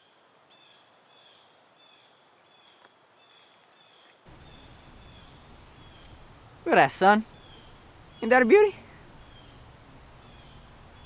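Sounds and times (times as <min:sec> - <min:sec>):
faint bird chirps: 0:00.6 - 0:11.0
low outdoor rumble: 0:04.3 - 0:11.0
soft hiss: 0:04.3 - 0:11.0.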